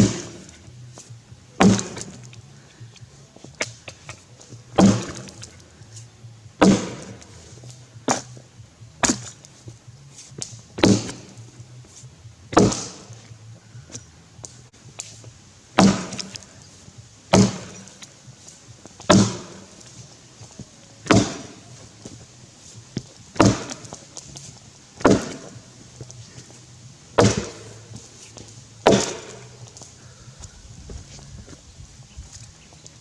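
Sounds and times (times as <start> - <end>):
axe chopping into log: 0.0 - 0.6, 1.6 - 2.4, 3.5 - 5.6, 6.6 - 8.4, 9.0 - 9.4, 10.4 - 11.4, 12.5 - 13.3, 15.8 - 16.6, 17.3 - 18.1, 19.0 - 22.3, 23.0 - 31.3.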